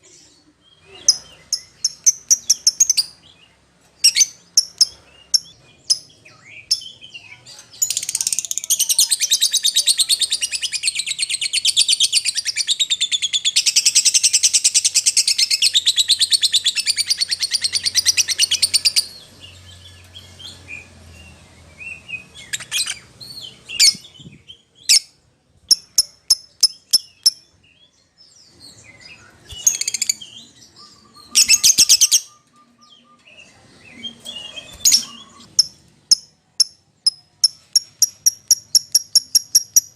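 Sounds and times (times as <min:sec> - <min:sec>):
sharp bird chirps: 0:10.8 - 0:27.7, 0:28.5 - 0:39.9
bird fast high-pitched trill: 0:34.4 - 0:39.9.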